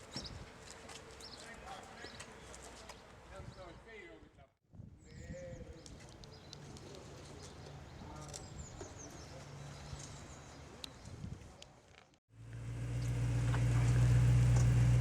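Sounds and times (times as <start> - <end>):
distant engine hum: 12.4 - 15.0.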